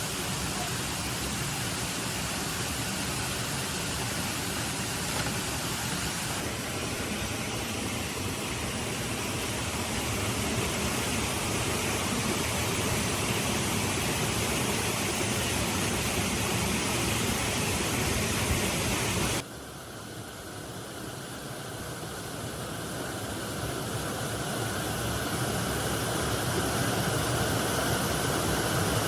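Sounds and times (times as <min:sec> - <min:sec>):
heavy rain falling: 0:00.0 - 0:19.4.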